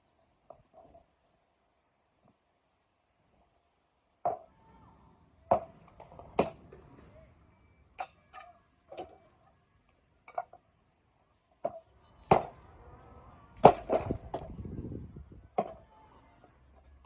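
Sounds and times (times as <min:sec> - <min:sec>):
blade striking firewood: 0:13.6 - 0:14.6.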